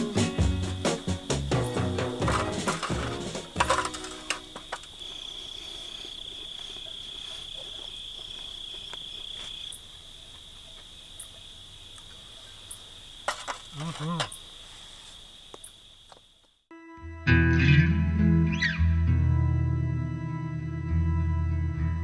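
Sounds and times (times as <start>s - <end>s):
crickets trilling: 0.0s - 16.7s.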